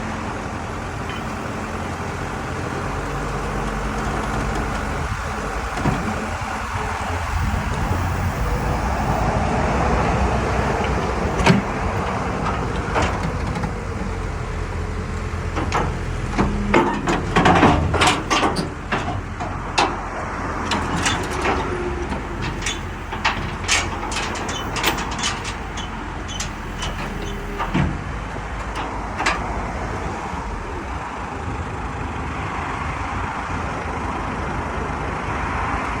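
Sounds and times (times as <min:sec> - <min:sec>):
heavy diesel engine running: 0:00.0 - 0:36.0
metallic clanks of steel ramps: 0:10.0 - 0:13.9, 0:15.6 - 0:30.4.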